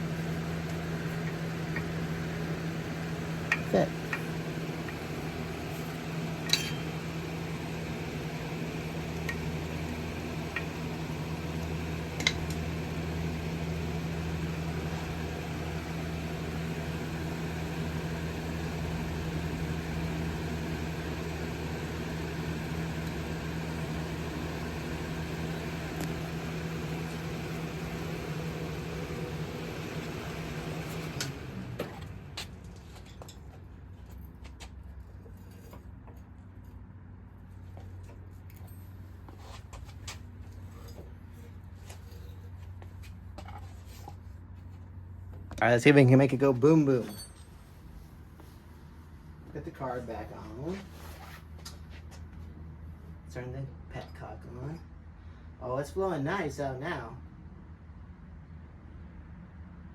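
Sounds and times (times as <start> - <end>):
machine hum: 0.0 - 33.4.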